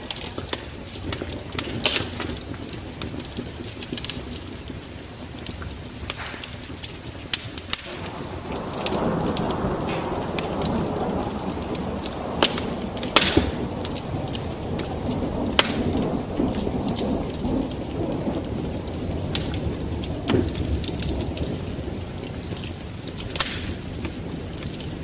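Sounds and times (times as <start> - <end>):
wood fire crackling and popping: 0.0 - 25.0
low rumble: 7.8 - 19.9.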